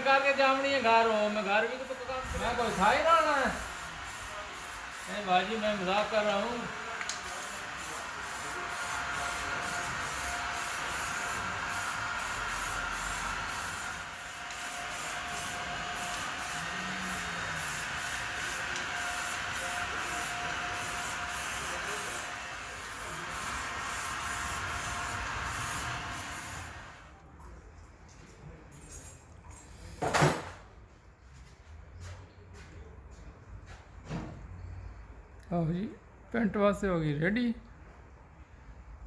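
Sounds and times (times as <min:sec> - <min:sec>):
spray gun hissing: 0:01.6 - 0:27.0.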